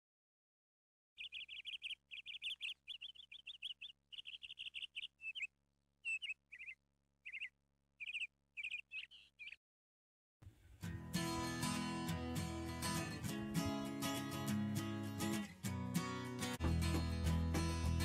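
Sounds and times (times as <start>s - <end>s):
bird chirping: 1.2s - 9.6s.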